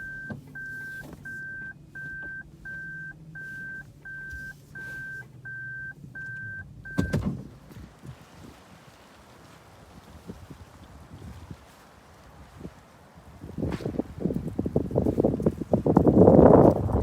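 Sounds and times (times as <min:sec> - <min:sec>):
high electronic beep: 0:00.0 - 0:07.2.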